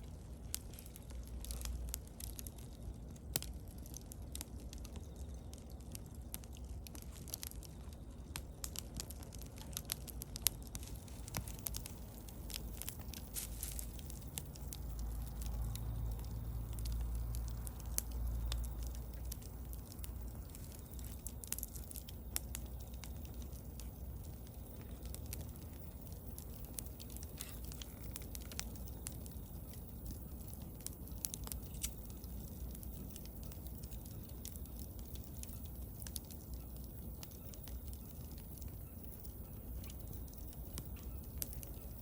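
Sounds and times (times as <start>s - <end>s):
bonfire crackling and popping: 0.0s - 42.0s
low rumble: 9.8s - 29.0s.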